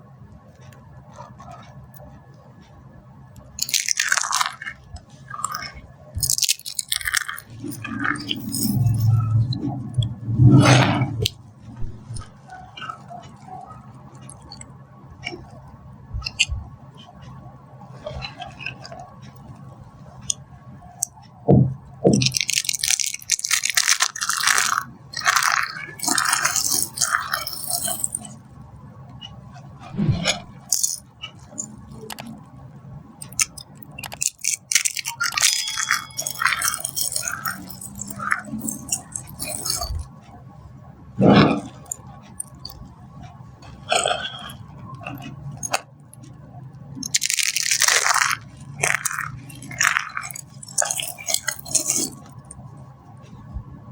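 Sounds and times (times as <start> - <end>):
dry soap crunching: 3.6 - 9.1, 22.1 - 28.3, 33.2 - 40.0, 47.0 - 52.4.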